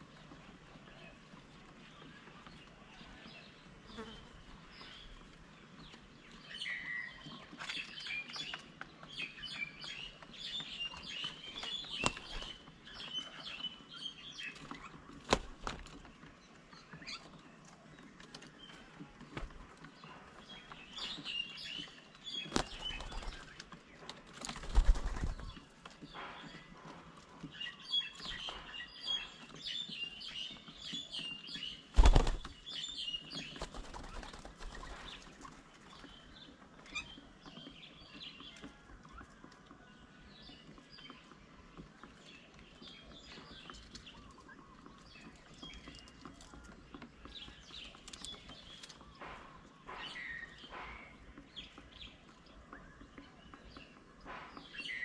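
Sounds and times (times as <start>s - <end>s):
small birds chirping: 0.0s - 55.0s
wings fluttering: 10.9s - 13.5s, 14.5s - 16.2s, 22.3s - 26.7s, 31.8s - 36.2s.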